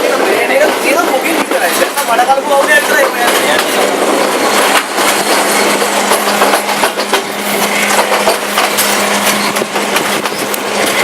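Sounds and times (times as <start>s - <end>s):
train rushing on rails: 0.0s - 11.0s
rattles and clicks: 2.8s - 11.0s.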